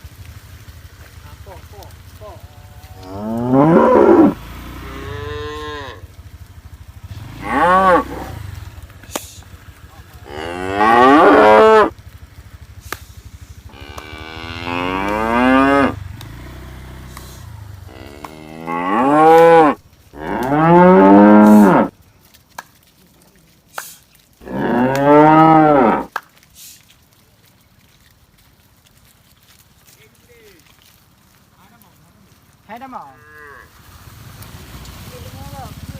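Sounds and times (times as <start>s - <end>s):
cattle mooing: 2.4s - 6.1s, 7.3s - 8.4s, 10.2s - 11.9s, 13.7s - 16.0s, 17.0s - 21.9s, 24.4s - 26.1s.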